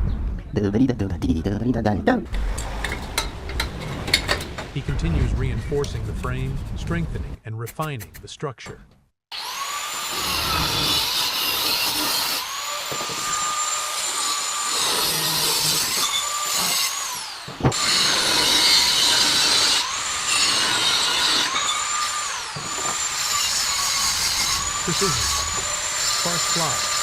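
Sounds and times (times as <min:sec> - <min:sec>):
angle grinder grinding steel: 0:09.3 - 0:27.0.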